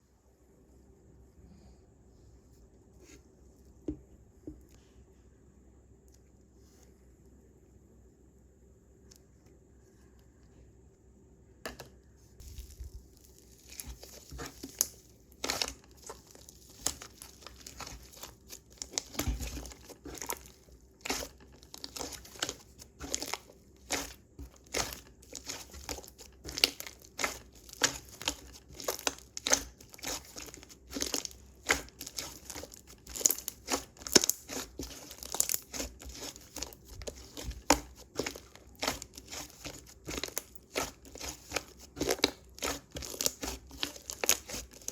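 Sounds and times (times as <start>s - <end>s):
slime crackling and popping: 12.4s - 44.9s.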